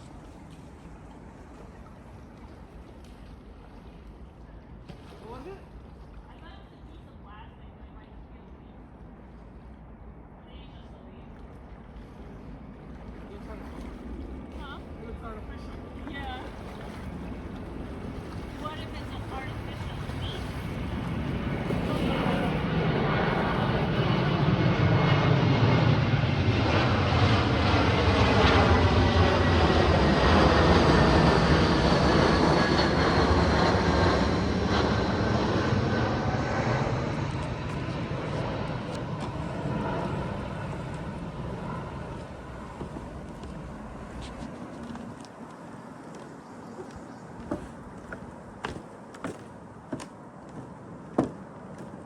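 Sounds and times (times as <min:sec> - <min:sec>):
airplane flying over: 0:00.0 - 0:52.0.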